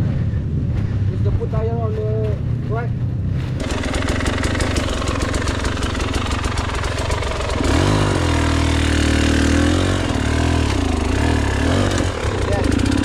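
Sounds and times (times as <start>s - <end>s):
two-stroke motorcycle engine revving: 3.4s - 13.0s.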